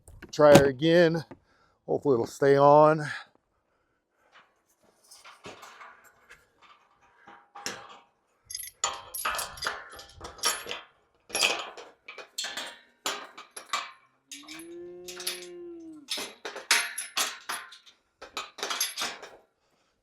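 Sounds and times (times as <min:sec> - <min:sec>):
metallic clanking and rattling: 0:07.6 - 0:19.4
cow mooing: 0:14.3 - 0:16.1.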